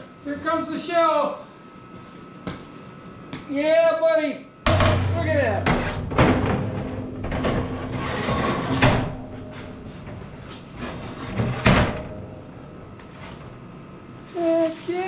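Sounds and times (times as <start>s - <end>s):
steel shelf clanking: 4.7s - 12.3s
metal scraping on metal: 6.8s - 11.8s.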